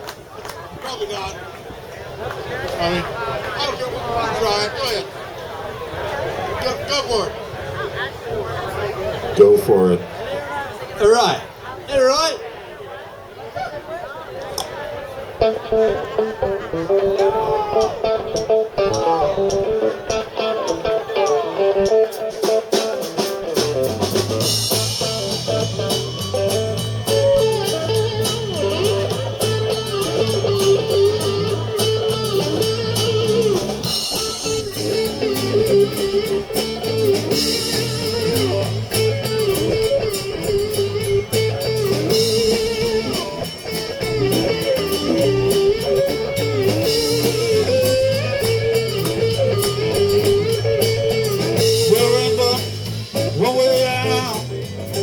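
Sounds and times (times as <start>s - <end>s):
electric guitar riffing: 15.3s - 55.0s
bass guitar: 15.4s - 55.0s
drums: 15.4s - 55.0s.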